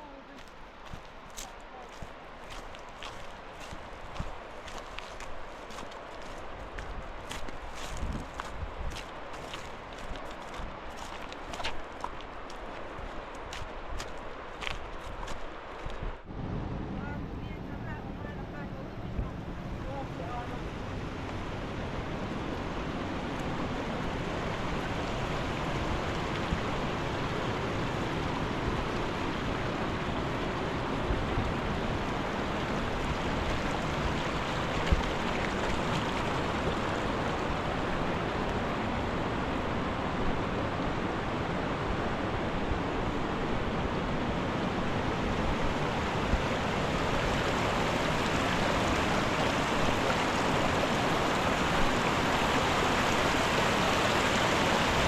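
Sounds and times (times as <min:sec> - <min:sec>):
mountain river rushing: 0:00.0 - 0:55.0.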